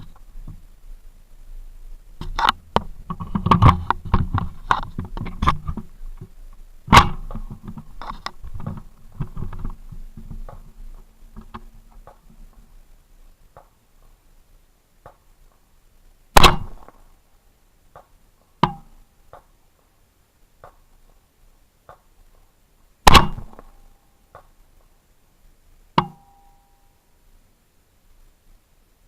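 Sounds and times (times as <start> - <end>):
loud rifle shots: 6.9 - 7.2, 16.4 - 17.0, 23.0 - 23.7
brief ringing tone: 26.2 - 27.0.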